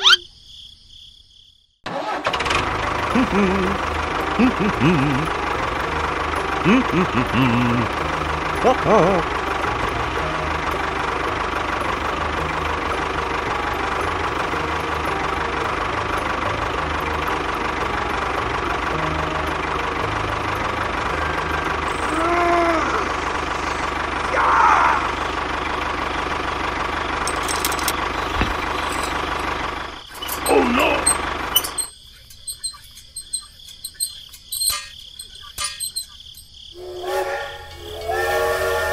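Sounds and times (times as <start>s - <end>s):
short squeaks: 0.0s - 0.3s, 27.3s - 29.5s, 30.1s - 36.6s
tractor engine idling: 1.9s - 38.9s.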